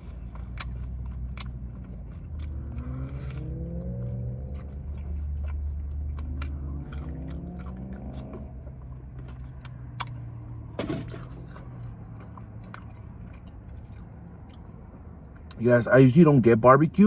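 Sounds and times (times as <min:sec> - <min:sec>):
loud bite crunch: 0:00.0 - 0:10.3
chewing and biting: 0:00.0 - 0:15.6.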